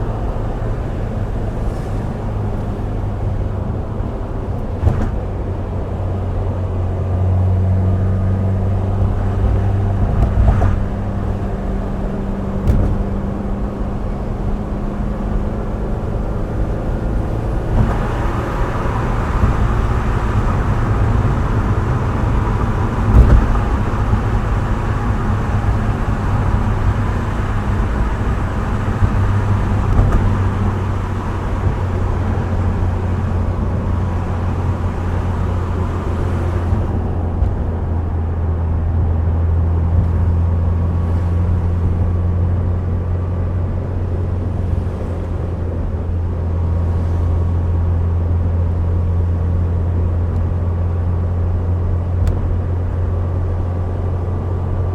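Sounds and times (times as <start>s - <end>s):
car engine low drone: 0.0s - 54.9s
tyre and road hiss: 1.4s - 3.3s
thump: 4.8s - 5.4s, 12.6s - 13.4s, 23.1s - 23.9s, 29.0s - 30.9s.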